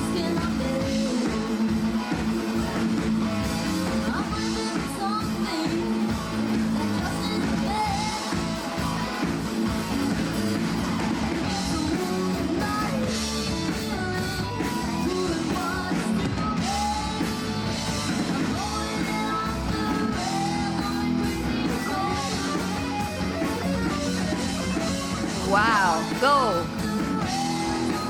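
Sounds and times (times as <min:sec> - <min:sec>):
lead vocal singing: 0:00.0 - 0:01.7, 0:18.3 - 0:23.0, 0:25.4 - 0:28.0
drum kit: 0:00.0 - 0:28.0
electric guitar: 0:00.0 - 0:28.0.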